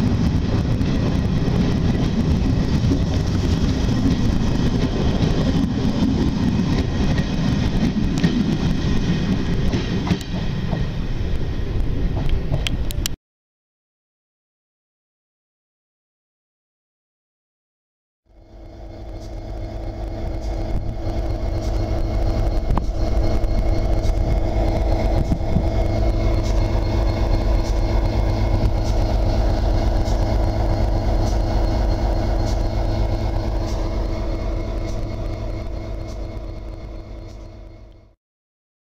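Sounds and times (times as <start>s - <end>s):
train rumbling: 0.0s - 13.2s, 18.3s - 38.2s
hum tones: 18.3s - 38.2s.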